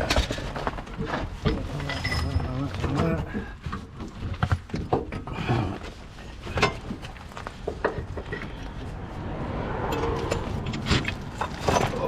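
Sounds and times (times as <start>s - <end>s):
metal tools clinking: 1.5s - 3.3s, 10.0s - 12.0s.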